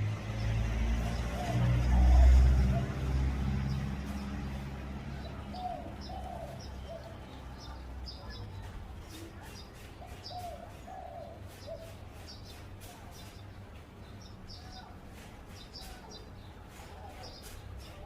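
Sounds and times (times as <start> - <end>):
small birds chirping: 0.0 - 18.0
dove cooing: 1.1 - 12.4.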